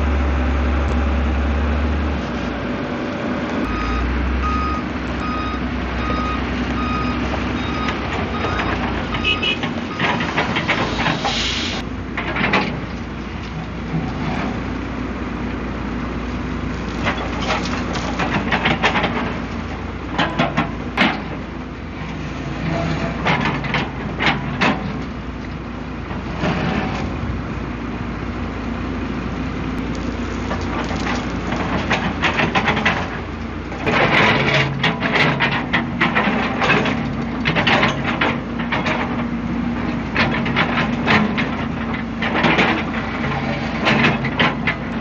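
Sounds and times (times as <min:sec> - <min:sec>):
diesel engine under load: 0:00.0 - 0:45.0
clanks and knocks: 0:07.7 - 0:11.2, 0:20.1 - 0:21.4, 0:22.8 - 0:25.1, 0:30.5 - 0:33.2, 0:33.8 - 0:45.0.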